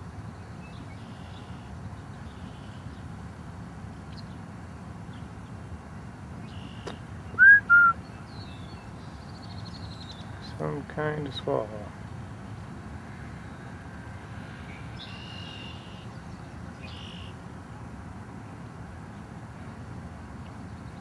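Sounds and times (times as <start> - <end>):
faint high bird chirps: 6.5 - 10.3, 16.8 - 17.4
loud short whistled notes: 7.4 - 8.0.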